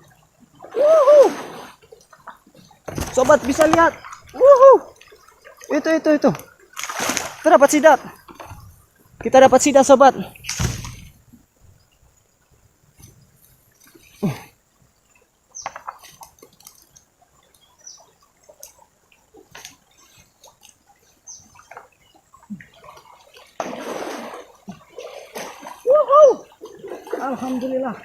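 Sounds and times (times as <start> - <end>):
water splashing from thrashing eel: 2.9 - 5.7, 6.4 - 7.8, 22.8 - 28.0.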